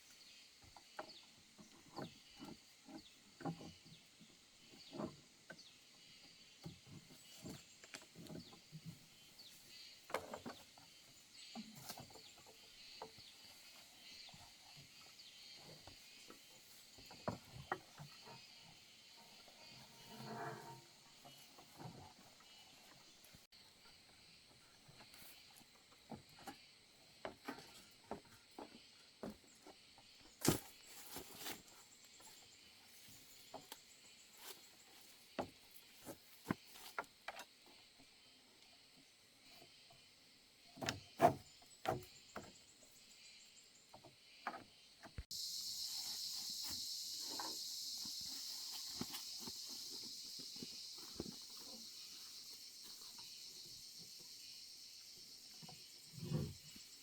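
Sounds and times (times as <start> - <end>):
high-pitched insect buzz: 45.3 - 57.0.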